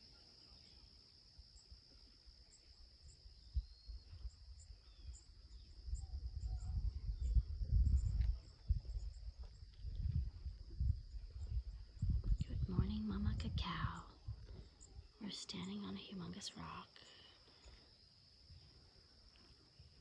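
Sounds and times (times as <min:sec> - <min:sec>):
crickets trilling: 0:00.0 - 0:20.0
low rumble: 0:05.9 - 0:16.2.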